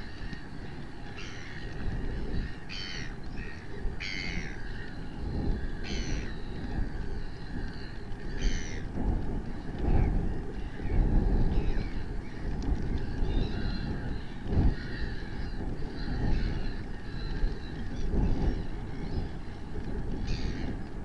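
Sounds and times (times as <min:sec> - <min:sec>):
wind rumble on microphone: 0:00.0 - 0:21.0
harsh bird squawks: 0:02.4 - 0:04.8, 0:05.8 - 0:06.4, 0:08.4 - 0:08.8.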